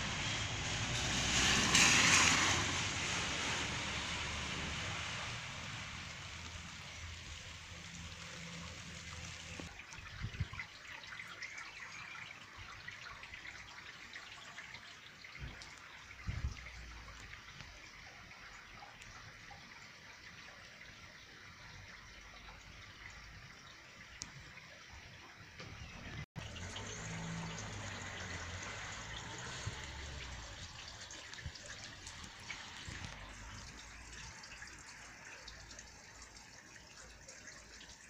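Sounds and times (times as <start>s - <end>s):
heavy rain on street: 0.0s - 9.7s, 26.4s - 35.7s.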